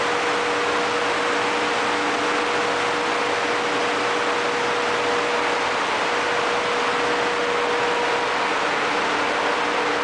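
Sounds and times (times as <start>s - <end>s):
constant machine tone: 0.0s - 10.0s
engine room machinery running: 0.0s - 10.0s.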